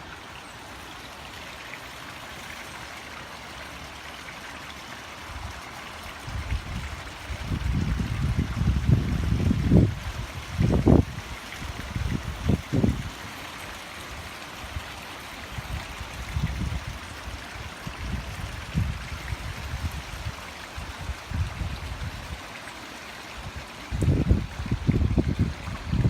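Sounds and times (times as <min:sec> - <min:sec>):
strong wind on microphone: 0:06.2 - 0:13.2, 0:15.6 - 0:22.4, 0:23.4 - 0:26.0.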